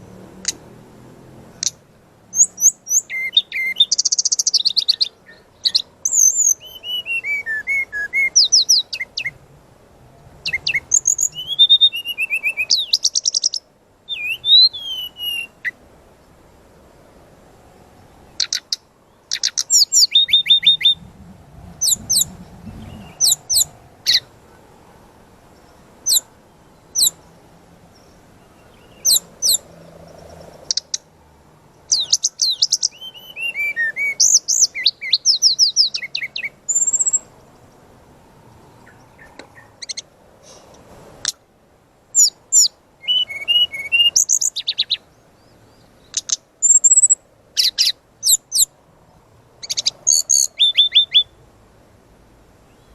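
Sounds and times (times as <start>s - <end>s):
bird chirps and trills: 1.5s - 9.4s, 10.4s - 15.8s, 18.3s - 31.1s, 31.8s - 37.7s, 38.8s - 40.6s, 42.1s - 48.7s, 49.6s - 51.4s.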